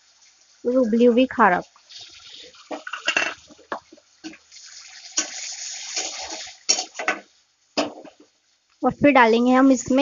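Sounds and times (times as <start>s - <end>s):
food sizzling in oil: 0.0s - 8.7s
spatula stirring in pan: 1.4s - 8.3s.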